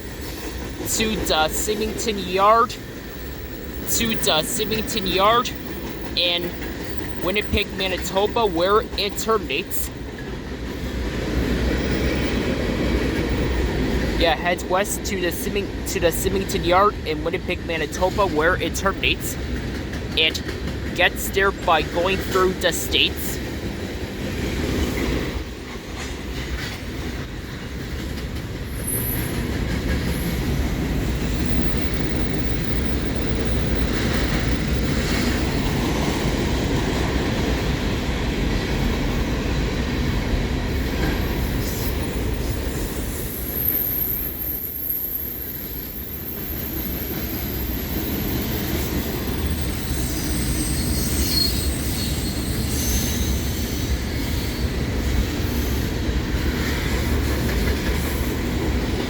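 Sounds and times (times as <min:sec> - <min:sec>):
freight train rumbling on rails: 0:00.0 - 0:59.0
high-pitched wheel squeal: 0:49.5 - 0:53.8.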